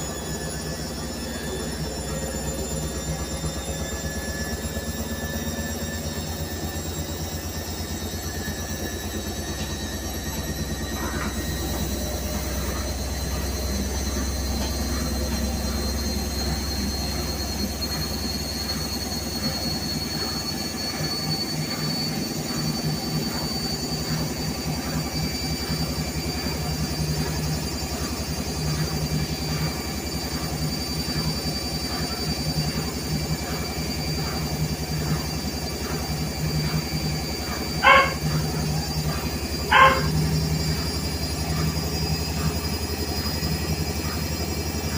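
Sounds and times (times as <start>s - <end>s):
high rising whine: 0.0s - 44.9s
washing machine running: 0.0s - 44.9s
dog barking: 37.4s - 40.4s.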